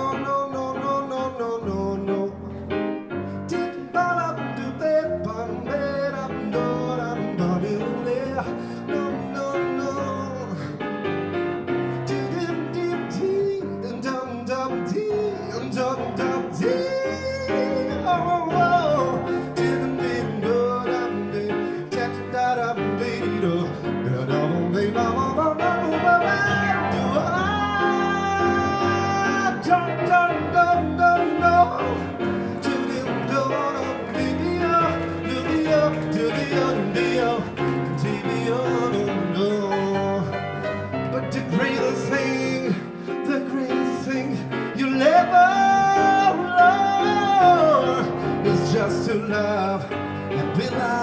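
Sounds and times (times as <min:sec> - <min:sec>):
live band ballad with piano: 0:00.0 - 0:51.0.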